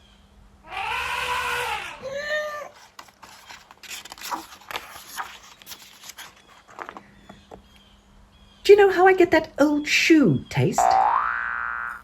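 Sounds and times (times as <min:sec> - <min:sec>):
clicks and scratchy scraping: 0:02.7 - 0:07.6.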